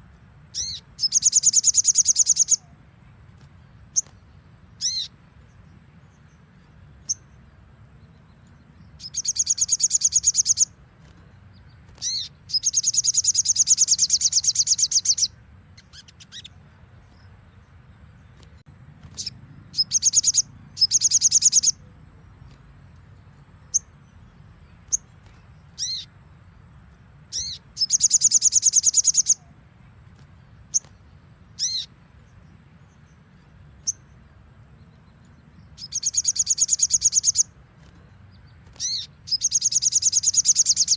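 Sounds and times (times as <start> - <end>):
bird song of rapid high notes: 0.0 - 40.9
sharp falling bird calls: 35.8 - 40.9.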